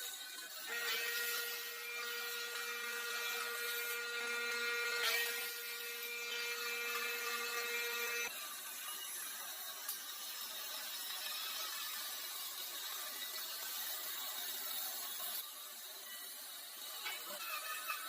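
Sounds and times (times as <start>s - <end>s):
power tool motor whining: 0.0s - 8.3s.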